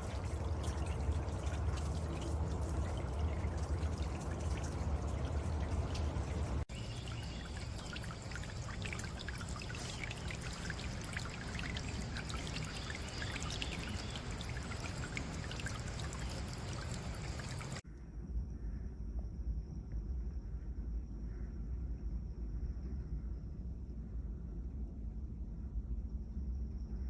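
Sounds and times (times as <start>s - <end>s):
fountain water splashing: 0.0s - 17.8s.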